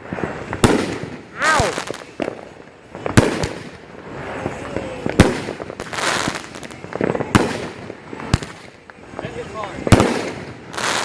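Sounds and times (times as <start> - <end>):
fireworks bangs: 0.0 - 11.0
fireworks hissing: 0.0 - 11.0.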